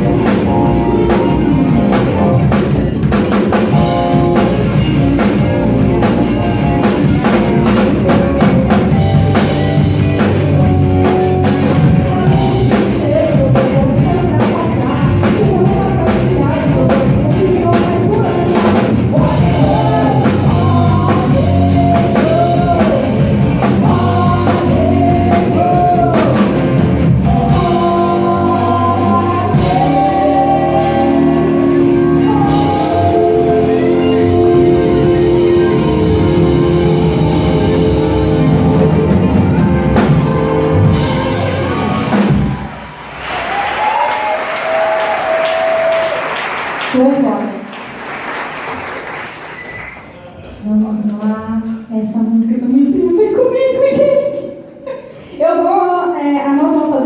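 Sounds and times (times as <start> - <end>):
lead singer: 0.0 - 42.9
rock band playing: 0.0 - 47.3.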